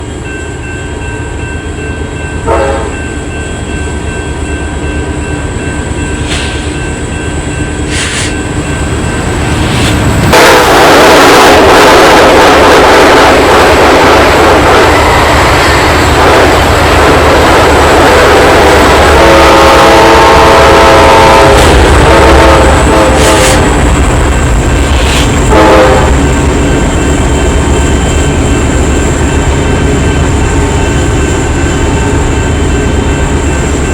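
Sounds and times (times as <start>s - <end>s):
train wheels rushing: 1.4s - 33.9s
train horn blasts: 2.4s - 3.1s, 10.2s - 23.9s, 25.0s - 27.5s.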